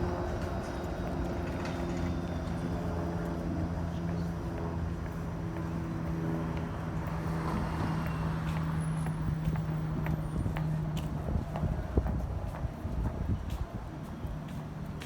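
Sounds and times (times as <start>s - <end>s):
footsteps on pavement: 4.0s - 15.0s.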